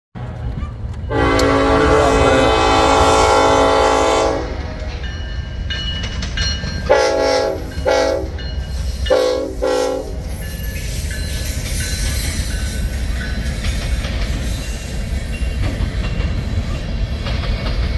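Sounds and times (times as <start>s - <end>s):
passing train rumble: 0.2s - 17.9s
locomotive horn blasts: 1.1s - 4.9s, 6.9s - 8.4s, 9.1s - 10.3s.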